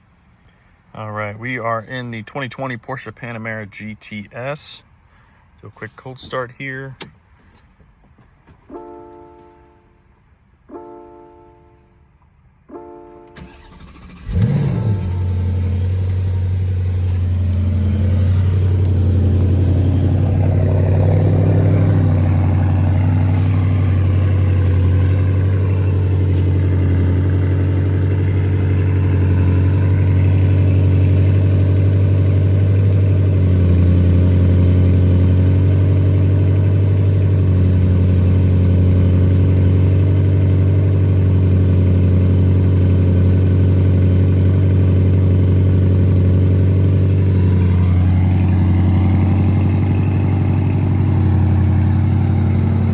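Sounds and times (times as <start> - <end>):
car engine starting and idling: 10.7 - 52.9
short electronic tone: 14.4 - 19.2.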